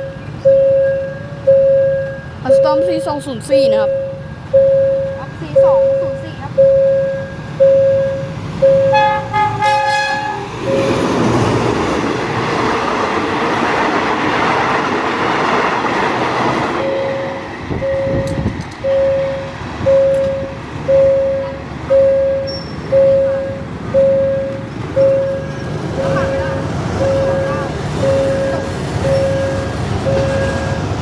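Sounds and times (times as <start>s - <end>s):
level crossing warning beeper: 0.0s - 11.6s, 16.8s - 31.0s
diesel locomotive passing: 0.0s - 31.0s
locomotive horn blast: 8.8s - 11.2s.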